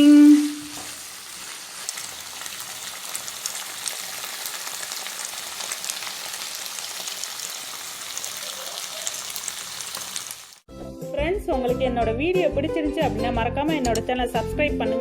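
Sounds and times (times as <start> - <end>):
food sizzling in a pan: 0.0 - 10.7.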